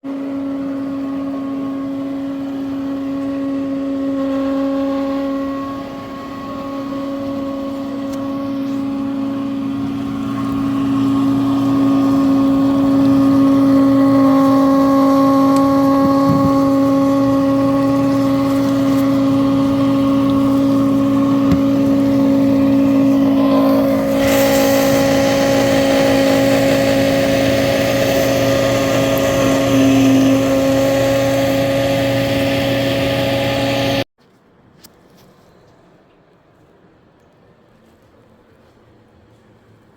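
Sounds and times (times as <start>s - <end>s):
dishwasher motor humming: 0.0s - 34.1s
water spraying hiss: 21.6s - 28.3s.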